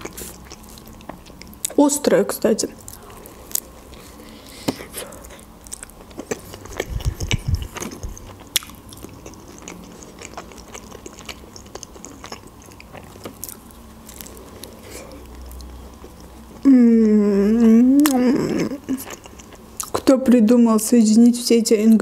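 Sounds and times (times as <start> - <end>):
biting and chewing food: 2.8 - 16.6.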